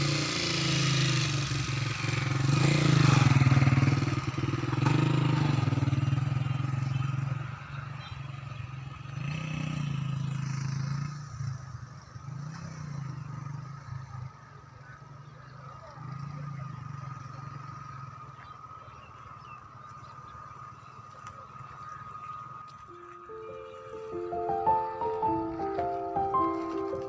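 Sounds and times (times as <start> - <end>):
engine running: 0.0 - 8.1, 19.8 - 27.0.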